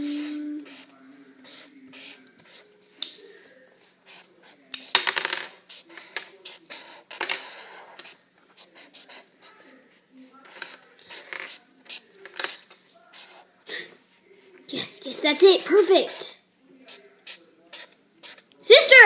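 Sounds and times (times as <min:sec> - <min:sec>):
marker scratching on paper: 0:00.2 - 0:02.7, 0:03.8 - 0:04.6, 0:05.6 - 0:12.1, 0:13.1 - 0:13.5, 0:16.9 - 0:18.5.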